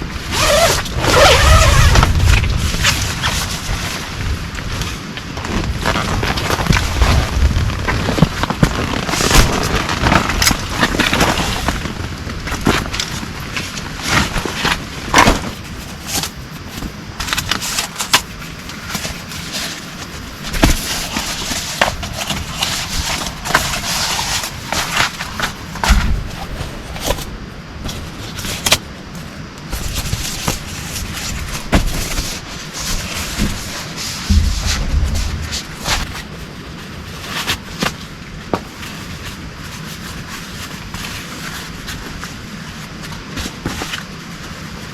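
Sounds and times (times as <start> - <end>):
brief low thuds: 34.3 - 36.1.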